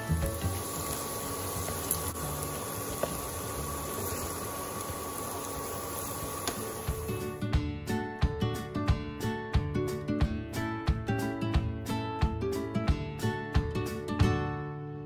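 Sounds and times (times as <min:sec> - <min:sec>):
vegetables sizzling in hot oil: 0:00.0 - 0:07.4.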